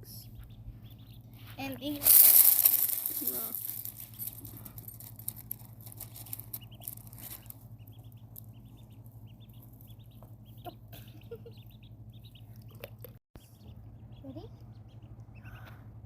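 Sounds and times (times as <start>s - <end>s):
ducklings peeping: 0.0s - 2.0s, 6.3s - 16.0s.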